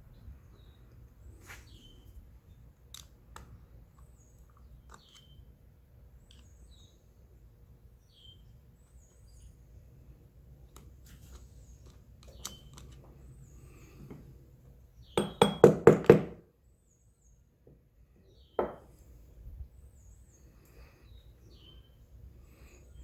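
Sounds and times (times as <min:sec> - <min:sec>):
faint bird chirps: 0:00.0 - 0:02.6, 0:08.0 - 0:09.7, 0:19.6 - 0:23.0.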